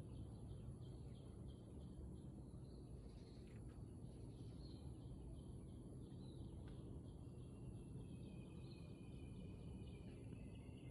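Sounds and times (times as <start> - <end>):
faint high bird chirps: 0.0 - 10.9.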